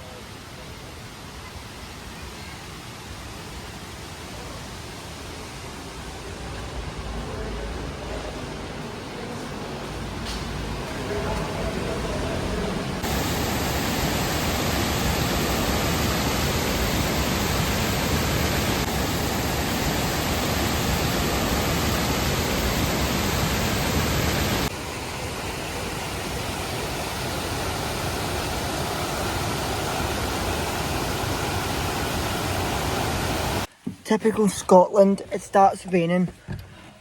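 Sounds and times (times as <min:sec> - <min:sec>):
waterfall rushing: 0:11.0 - 0:33.7.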